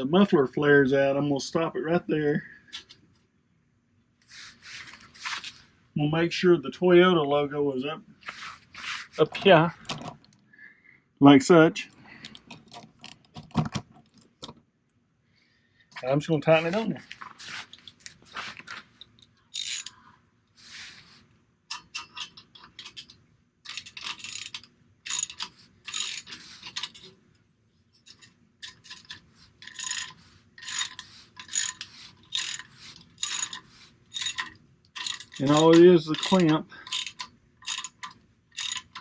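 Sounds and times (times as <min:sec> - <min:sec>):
ratchet wrench clicking: 0:19.5 - 0:20.0, 0:23.7 - 0:27.1, 0:28.1 - 0:39.0.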